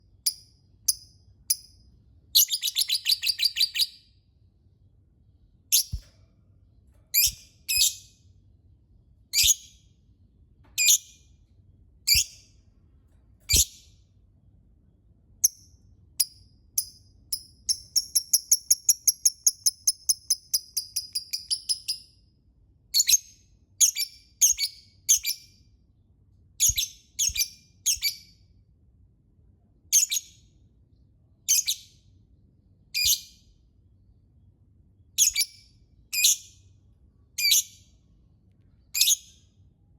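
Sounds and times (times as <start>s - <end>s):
lovebird chirping: 2.4s - 4.2s, 5.7s - 6.0s, 7.1s - 8.2s, 9.3s - 9.8s, 12.1s - 12.4s, 13.5s - 13.9s, 16.2s - 22.1s, 26.6s - 28.3s, 31.5s - 31.9s, 35.2s - 36.6s, 37.4s - 37.8s, 38.9s - 39.4s.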